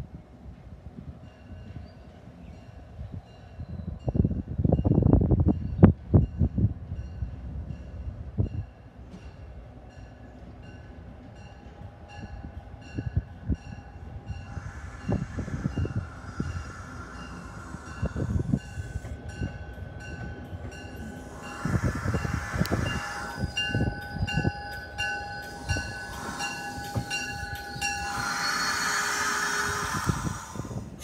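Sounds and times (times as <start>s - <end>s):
train rumble and hiss: 0.0s - 31.0s
train bell ringing: 1.2s - 30.1s
steady squeal: 14.3s - 19.5s, 20.8s - 31.0s.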